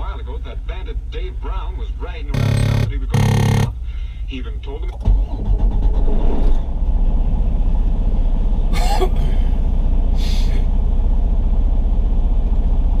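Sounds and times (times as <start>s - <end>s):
truck engine idling: 2.1s - 4.3s.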